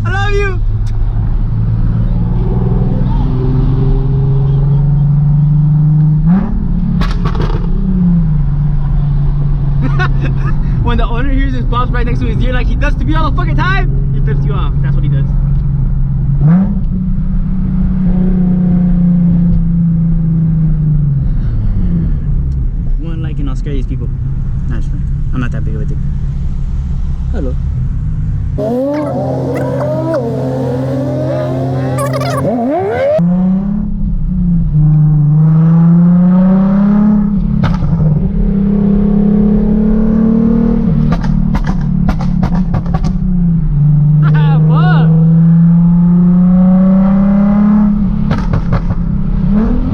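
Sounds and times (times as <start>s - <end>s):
exhaust pops: 6.9s - 7.8s
loud car exhaust drone: 28.6s - 33.2s.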